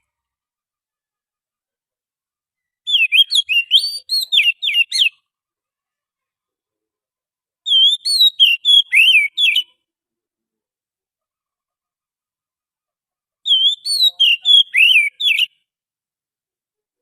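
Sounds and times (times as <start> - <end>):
bird singing whistled notes: 2.6 - 5.3, 7.6 - 9.8, 13.4 - 15.6.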